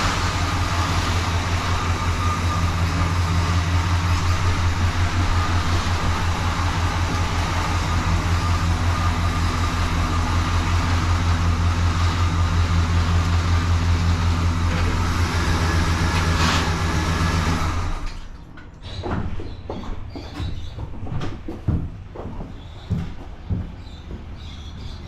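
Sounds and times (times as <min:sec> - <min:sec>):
car engine idling: 0:00.0 - 0:18.1.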